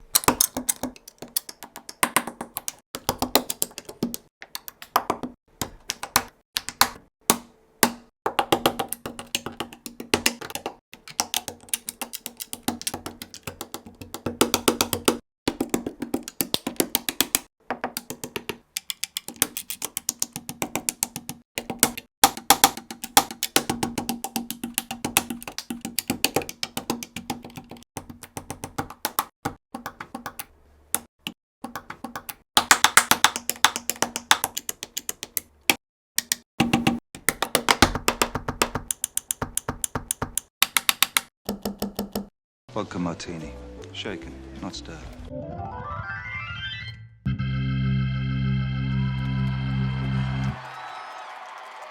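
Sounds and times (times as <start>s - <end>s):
plastic bricks clicking together: 0.0s - 5.0s, 8.8s - 15.1s, 16.2s - 22.0s
music: 42.8s - 50.6s.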